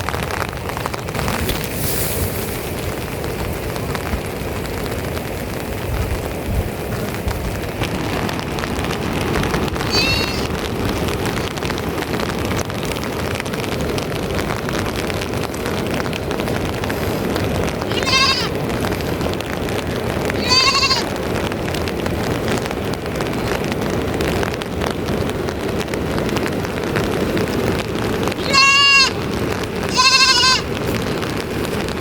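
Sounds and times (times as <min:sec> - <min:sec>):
steady background hiss: 0:00.6 - 0:04.6
young sheep or goat bleating: 0:09.9 - 0:10.6, 0:17.9 - 0:18.6, 0:20.4 - 0:21.1, 0:28.4 - 0:29.2, 0:29.9 - 0:30.7.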